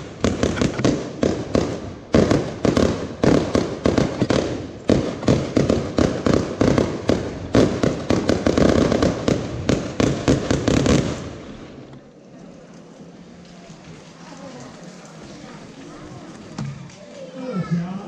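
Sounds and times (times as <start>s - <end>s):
fireworks banging: 0.0s - 12.1s.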